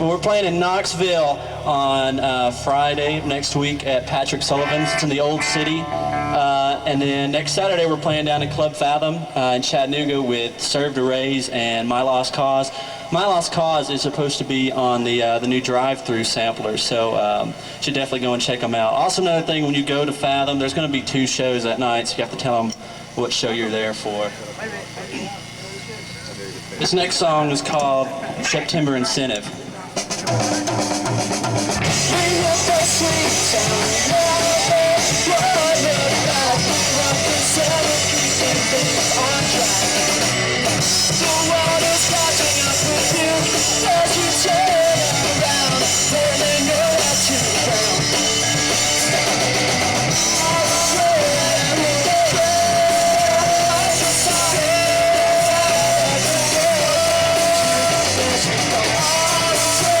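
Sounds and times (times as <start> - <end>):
punk rock band playing: 0.0 - 8.2, 30.0 - 60.0
shouted vocals: 4.5 - 7.1.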